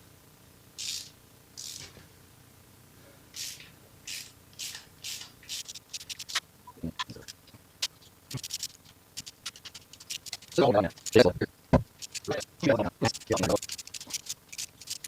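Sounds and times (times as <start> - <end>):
ratchet tool rasping: 7.1 - 11.2, 11.9 - 15.0.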